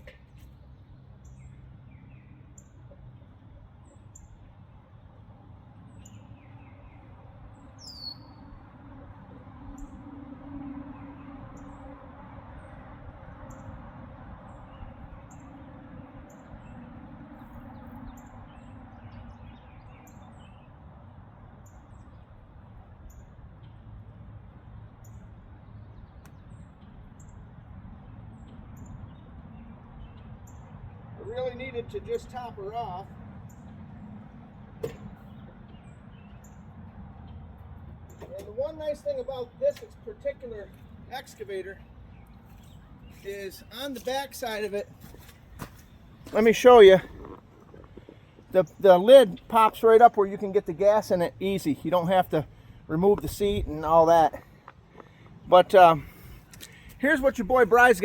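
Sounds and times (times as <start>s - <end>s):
bird chirping: 5.8s - 8.6s, 40.5s - 58.0s.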